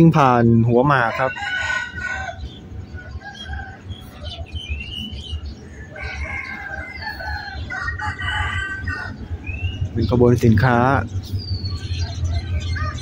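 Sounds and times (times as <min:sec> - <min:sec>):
birds chirping: 0:00.0 - 0:13.0
freight train wheels rumbling: 0:08.4 - 0:13.0.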